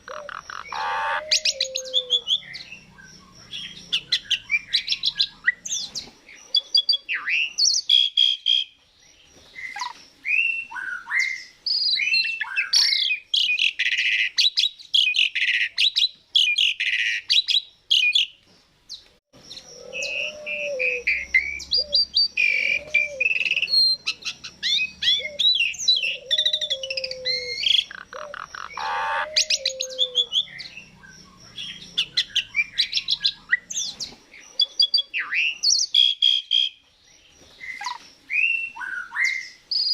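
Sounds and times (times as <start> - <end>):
starling singing: 0.0 - 6.0, 19.4 - 36.8
lower repeated bird notes: 0.0 - 18.3, 19.4 - 39.9.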